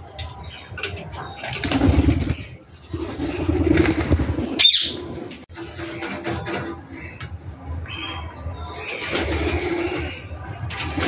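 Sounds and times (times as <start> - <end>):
birds cooing: 0.8 - 5.4, 7.9 - 11.0.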